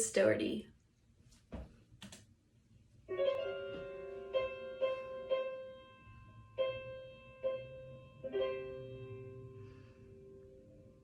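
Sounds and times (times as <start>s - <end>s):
slow solo piano: 3.1s - 11.0s.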